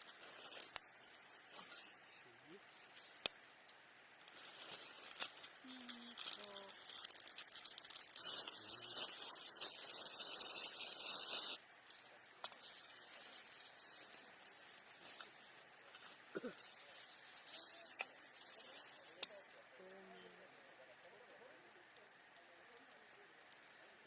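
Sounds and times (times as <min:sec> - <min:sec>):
aluminium foil crinkling: 0:00.0 - 0:21.2, 0:22.0 - 0:24.0
foil tearing and rustling: 0:04.2 - 0:19.4.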